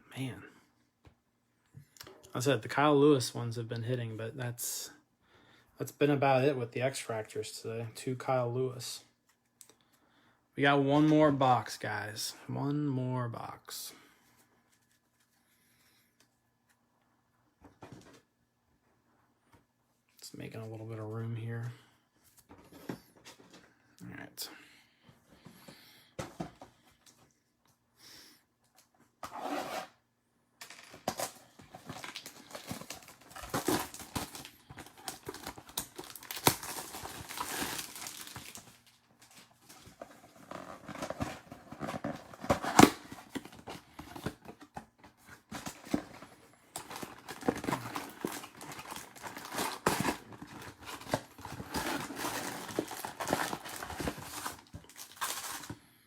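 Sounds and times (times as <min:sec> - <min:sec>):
foil wrappers crinkling and tearing: 0:31.0 - 0:44.5, 0:45.5 - 0:55.9.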